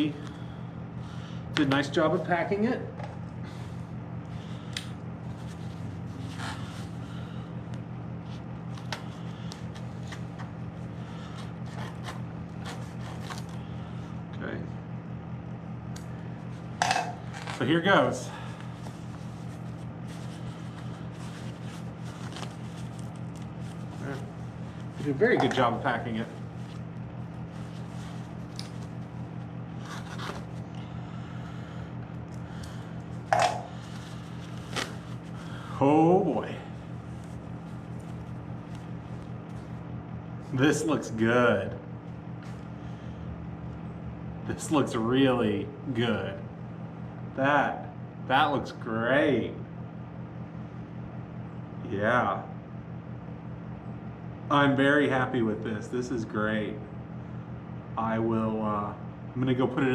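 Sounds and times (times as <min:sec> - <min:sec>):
steady low hum: 0:00.0 - 0:59.9
packing material rustling: 0:18.5 - 0:25.2, 0:26.3 - 0:30.6, 0:33.7 - 0:35.7
bubble wrap crinkling: 0:18.6 - 0:25.2, 0:33.2 - 0:35.6.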